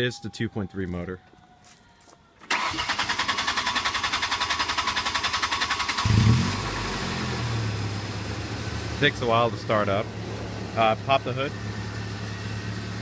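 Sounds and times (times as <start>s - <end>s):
starter motor cranking: 2.4s - 6.4s
engine revving and idling: 3.8s - 13.0s.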